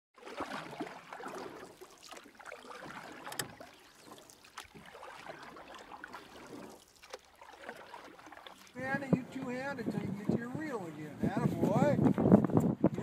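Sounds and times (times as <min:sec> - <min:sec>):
small splashes: 0:00.2 - 0:09.2
water lapping against boat hull: 0:00.2 - 0:13.0.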